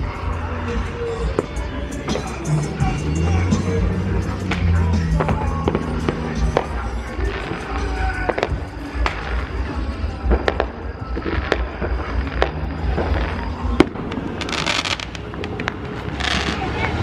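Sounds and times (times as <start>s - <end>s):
low rumble: 0.0s - 15.9s
music: 0.0s - 17.0s
fireworks cracks and pops: 6.6s - 17.0s.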